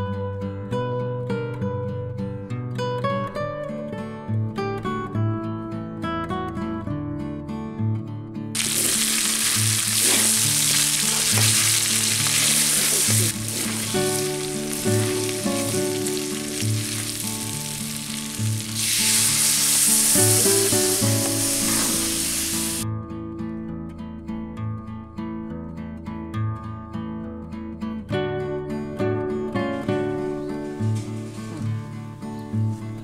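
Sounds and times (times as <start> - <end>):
acoustic guitar music: 0.0 - 33.0
chicken sizzling in hot oil: 8.6 - 22.8
water poured into pan: 8.6 - 22.8.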